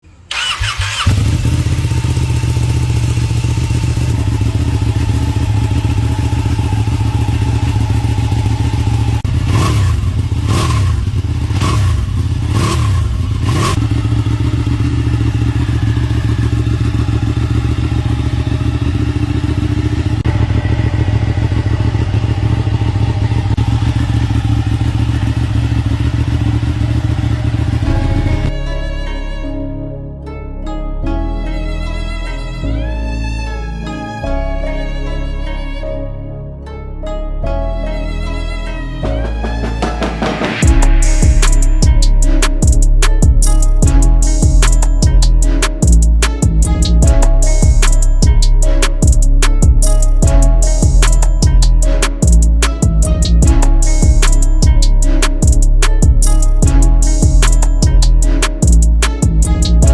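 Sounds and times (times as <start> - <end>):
motorcycle engine idling: 0.3 - 28.5, 39.1 - 59.9
engine throttle blips: 0.3 - 28.7.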